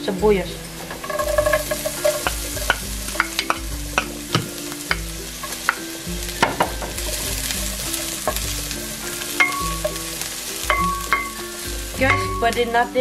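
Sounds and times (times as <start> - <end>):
onion and garlic sizzling in oil: 0.0 - 13.0
sharp crackles: 0.5 - 12.9.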